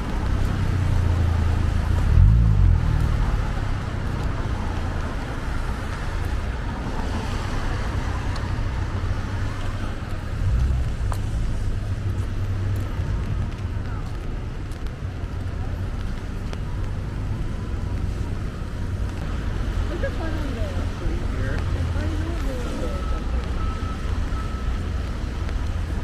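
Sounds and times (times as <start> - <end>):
engine rumble: 0.0 - 26.0
tyres hissing on wet road: 6.8 - 12.4.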